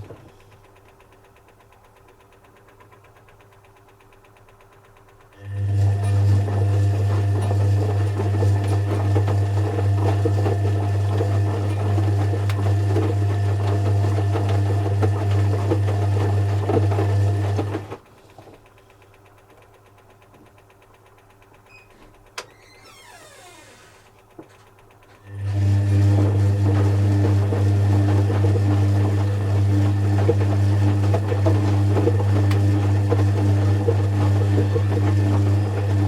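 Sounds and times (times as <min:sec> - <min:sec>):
washing machine humming: 0:00.0 - 0:36.0.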